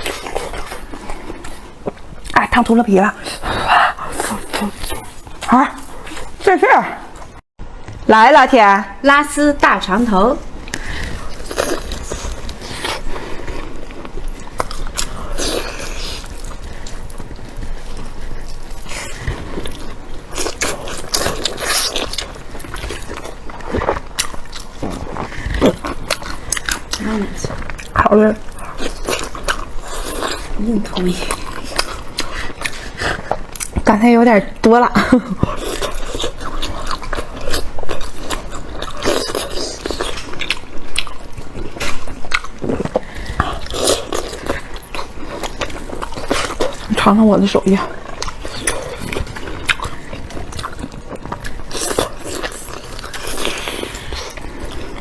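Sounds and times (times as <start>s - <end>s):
close-miked biting and chewing: 0.0s - 7.4s, 10.6s - 33.9s, 35.1s - 55.0s
wet mouth noises: 0.0s - 7.4s.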